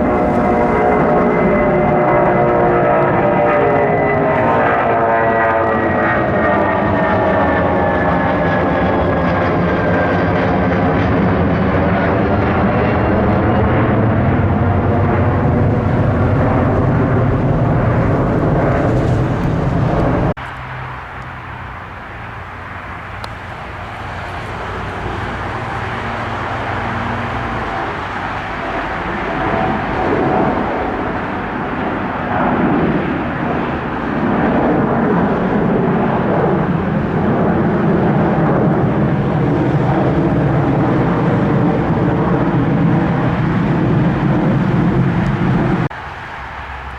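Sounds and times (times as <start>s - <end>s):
aircraft engines running: 0.0s - 46.9s
quieter engine noise: 0.0s - 46.9s.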